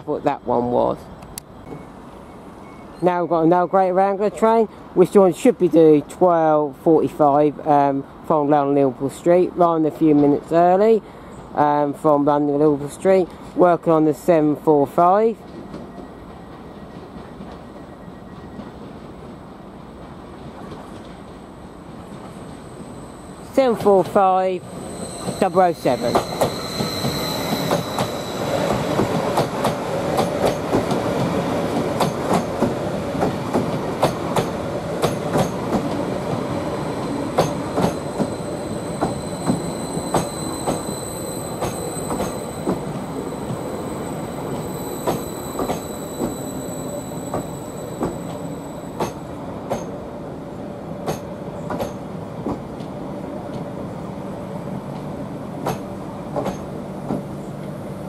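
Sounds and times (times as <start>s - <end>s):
thin high wheel squeal: 22.6s - 29.0s, 37.4s - 49.2s
train wheels clicking over rail joints: 26.0s - 36.4s, 37.3s - 40.9s, 41.5s - 43.7s, 44.5s - 46.4s, 47.3s - 50.0s, 51.0s - 53.7s, 55.0s - 57.3s.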